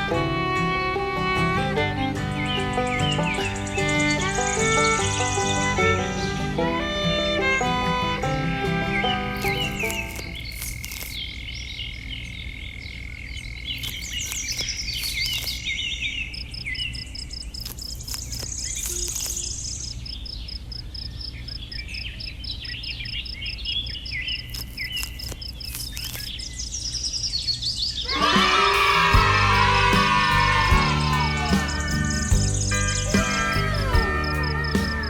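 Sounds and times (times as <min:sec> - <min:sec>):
birds chirping: 0:00.0 - 0:35.0
high insect trill: 0:03.0 - 0:06.6, 0:16.4 - 0:21.6, 0:28.1 - 0:35.0.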